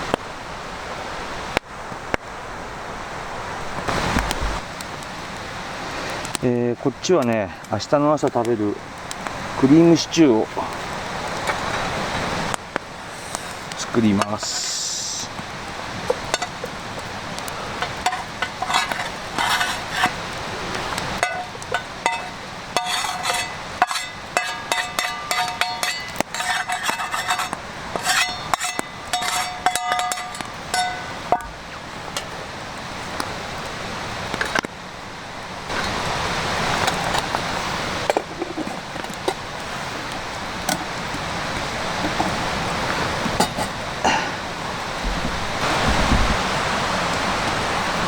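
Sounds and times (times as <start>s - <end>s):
steady hiss: 0.0s - 48.0s
metal cookware clinking: 16.1s - 16.8s, 17.8s - 20.2s, 21.2s - 32.3s, 43.4s - 43.8s.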